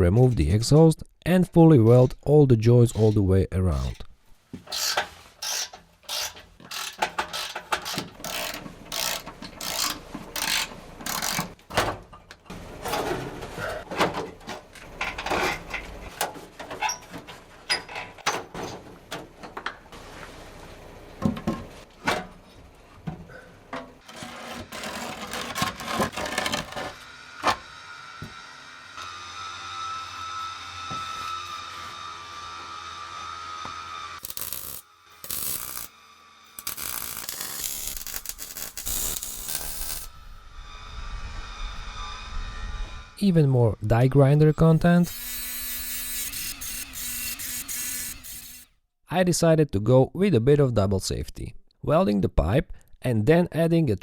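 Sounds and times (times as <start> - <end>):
hand tool rasping strokes: 2.8 - 11.6, 24.0 - 27.0, 34.2 - 35.9, 36.5 - 40.1, 44.6 - 48.7
metal clanks and scrapes: 3.8 - 19.8, 21.4 - 27.0.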